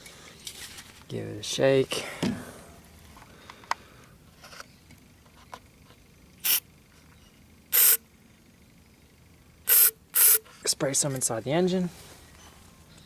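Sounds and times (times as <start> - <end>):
aerosol spray can hissing: 6.4 - 6.6, 7.7 - 8.0, 9.7 - 10.4.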